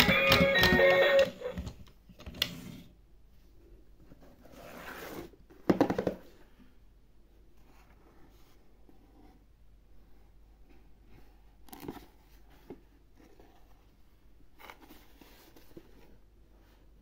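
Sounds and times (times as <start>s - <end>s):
cardboard box rustling and scraping: 4.1s - 5.5s.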